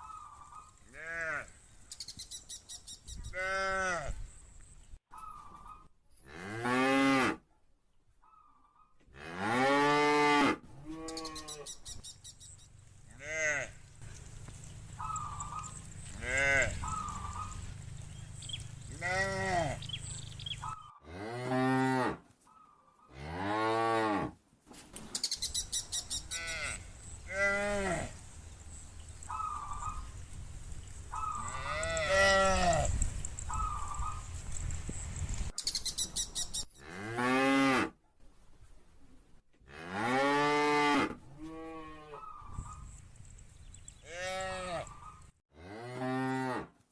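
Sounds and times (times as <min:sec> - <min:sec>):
cows mooing: 0:13.1 - 0:22.2, 0:26.2 - 0:30.2, 0:31.2 - 0:34.7, 0:44.0 - 0:46.6.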